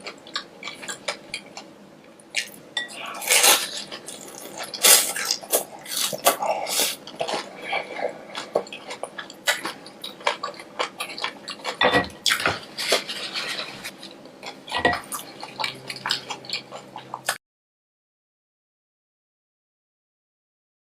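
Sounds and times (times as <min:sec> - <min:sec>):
utensils clinking on dishes: 0:11.7 - 0:13.8.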